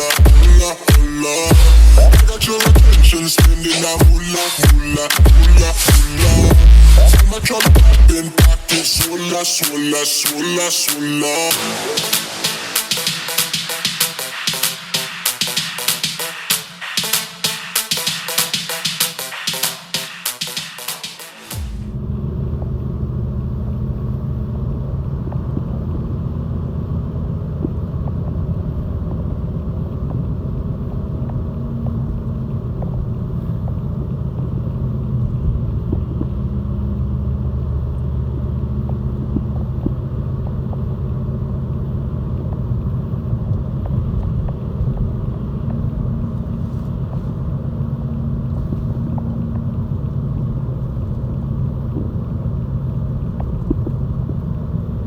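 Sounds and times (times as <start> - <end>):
diesel engine low rumble: 0.0 - 10.0, 21.6 - 55.0.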